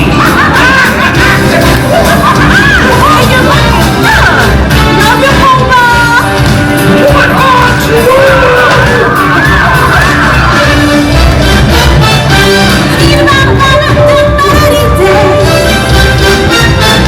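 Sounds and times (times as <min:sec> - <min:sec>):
loud stage-show music with singing: 0:00.0 - 0:17.0
performers yelling calls: 0:00.1 - 0:13.4.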